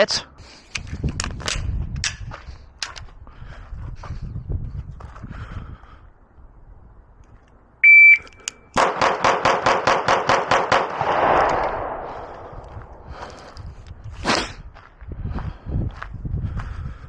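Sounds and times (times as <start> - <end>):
shot timer beep: 7.8 - 8.7
rapid pistol shots: 8.8 - 13.0.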